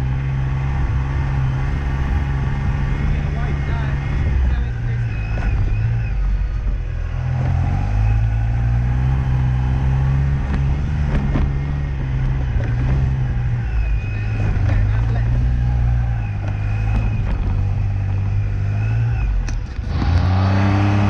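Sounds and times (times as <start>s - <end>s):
car engine running under load: 0.0s - 21.0s.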